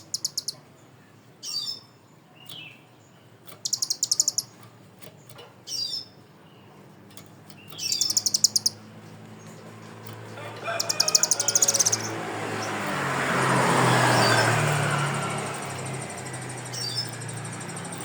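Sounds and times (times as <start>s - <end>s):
songbird whistles and trills: 1.4s - 4.7s, 7.5s - 8.8s, 10.4s - 12.9s, 14.1s - 18.0s.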